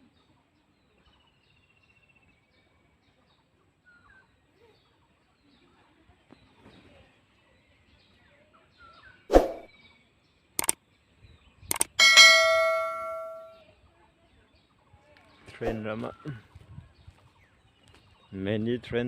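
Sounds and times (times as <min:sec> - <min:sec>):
bird chirps and trill: 0:11.7 - 0:13.6
loud metallic clang: 0:12.0 - 0:13.5.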